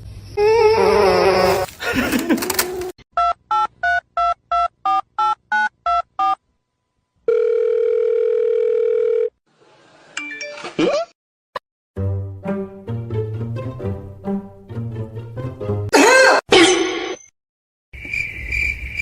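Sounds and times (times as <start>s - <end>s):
steady telephone tone: 7.3s - 9.4s.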